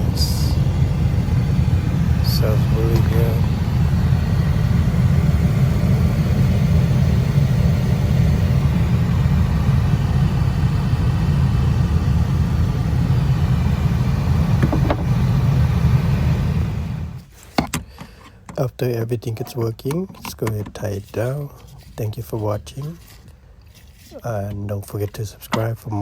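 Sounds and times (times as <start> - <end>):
heater blower fan running: 0.0 - 17.4.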